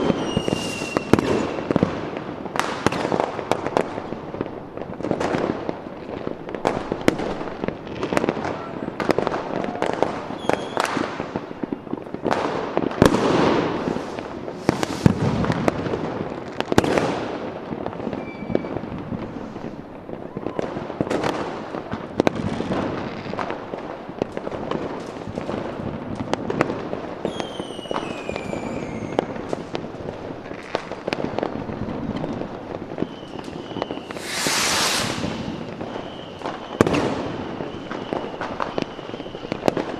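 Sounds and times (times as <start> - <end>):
fireworks whistles falling in pitch: 0.0 - 1.9, 8.0 - 12.0, 13.2 - 15.6, 18.0 - 19.0, 27.2 - 29.4, 32.2 - 39.9
fireworks bangs and crackles: 0.0 - 39.9
loud hiss: 13.8 - 15.4, 33.9 - 36.3.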